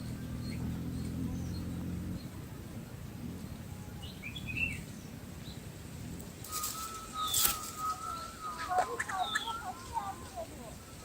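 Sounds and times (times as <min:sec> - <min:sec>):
thin steady tone: 0:06.4 - 0:11.0
high bird chirps: 0:06.5 - 0:11.0.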